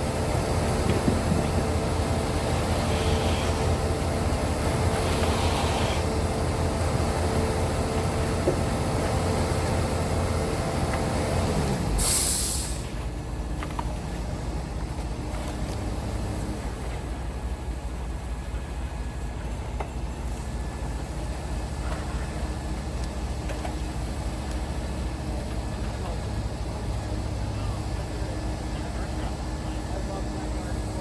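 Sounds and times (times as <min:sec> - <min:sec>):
heavy engine running: 0:00.0 - 0:31.0
short loud hiss: 0:12.0 - 0:12.8.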